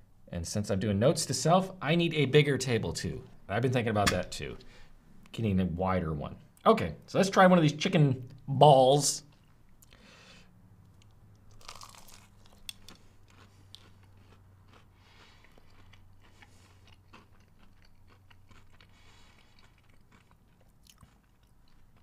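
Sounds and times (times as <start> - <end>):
crunching and chewing food: 10.9 - 22.0.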